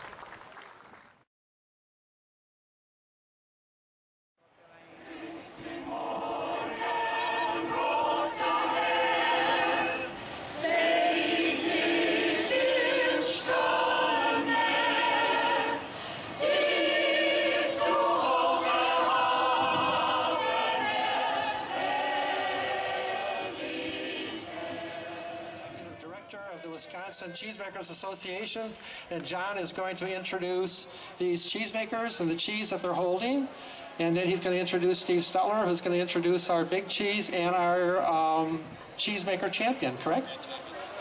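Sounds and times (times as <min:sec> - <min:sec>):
choir singing unaccompanied: 0:04.8 - 0:26.0.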